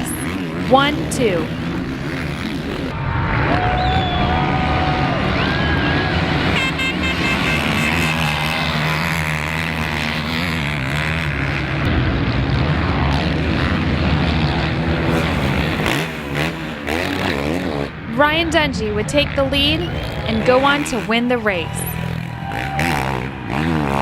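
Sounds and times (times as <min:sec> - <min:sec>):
motorcycle engines racing: 0:00.0 - 0:24.0.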